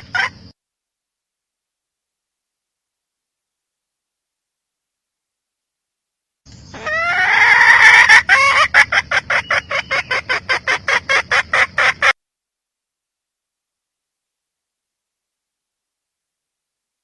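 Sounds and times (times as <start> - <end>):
hen calling: 6.5 - 12.2
hen clucking rapidly: 6.7 - 12.2.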